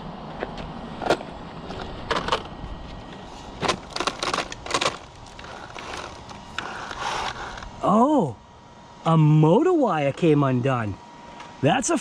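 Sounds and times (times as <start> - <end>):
low background rumble: 0.0 - 9.8
crunches and sharp cracks: 0.5 - 7.7.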